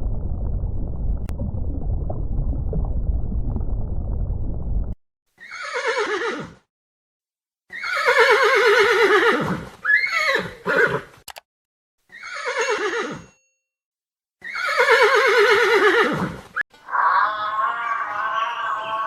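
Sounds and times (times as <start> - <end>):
horse whinnying: 5.4 - 6.6, 7.7 - 11.1, 12.1 - 13.2, 14.4 - 19.0.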